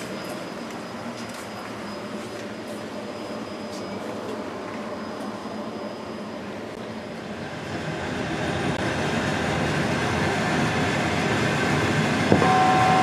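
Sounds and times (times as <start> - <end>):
train wheel and rail noise: 0.0 - 13.0
on-board chime tone: 12.4 - 13.0.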